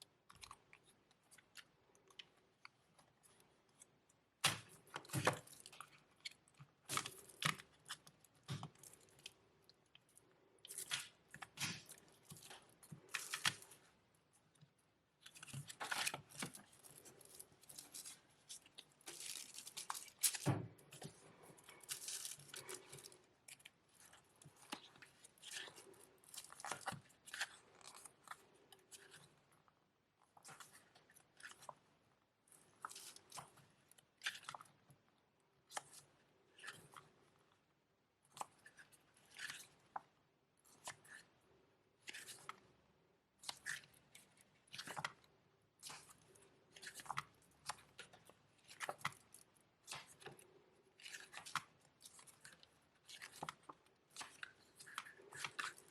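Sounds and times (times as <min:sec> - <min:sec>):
packaging rustling and crinkling: 0:15.2 - 0:27.1.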